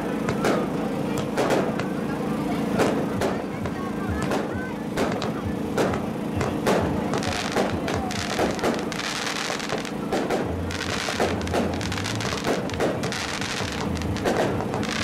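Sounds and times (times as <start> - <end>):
fireworks crackling: 0.0 - 15.0
fireworks shells bursting: 4.2 - 15.0.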